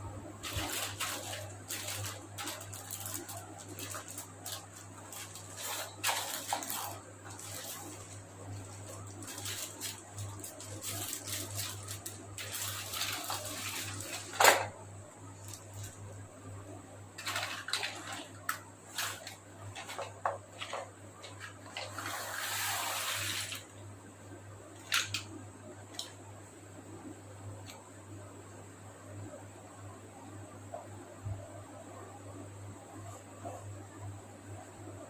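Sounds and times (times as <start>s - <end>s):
plastic packaging crinkling: 0.4s - 14.7s, 15.4s - 16.2s, 17.2s - 23.6s.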